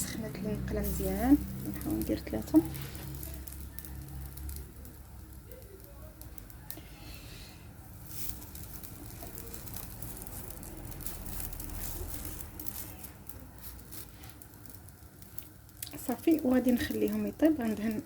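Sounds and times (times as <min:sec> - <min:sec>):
pastries sizzling in a pan: 0:00.0 - 0:18.0.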